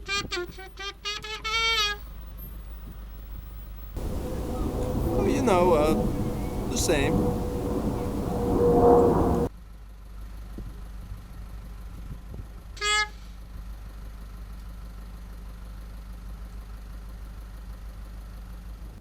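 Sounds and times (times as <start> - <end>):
short horn toot: 4.0 - 9.5
steady low rumble: 4.0 - 9.5.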